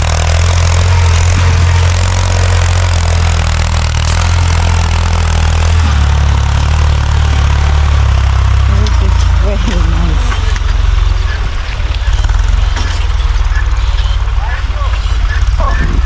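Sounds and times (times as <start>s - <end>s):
tractor engine droning: 0.0s - 16.0s.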